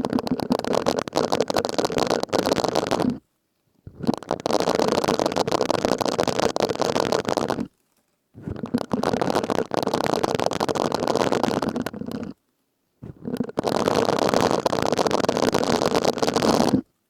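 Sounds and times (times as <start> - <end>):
sponge scrubbing crackly scratching: 3.9 - 7.7, 8.4 - 12.4, 13.0 - 16.9.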